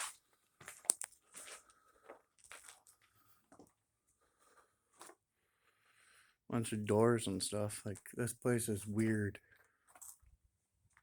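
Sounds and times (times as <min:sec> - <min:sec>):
faint footsteps on littered floor: 0:00.0 - 0:03.7.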